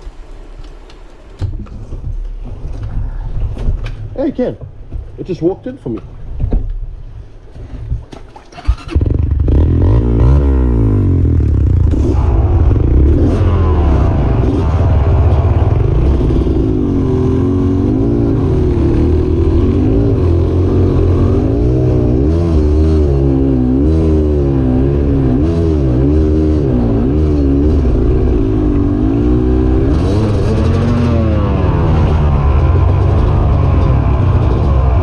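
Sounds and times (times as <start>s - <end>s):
dirt bike engine revving: 8.6s - 35.0s.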